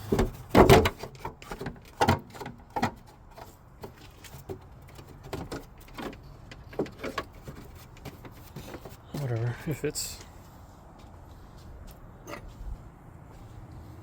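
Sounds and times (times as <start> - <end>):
engine part knocking and clattering: 0.0 - 9.6.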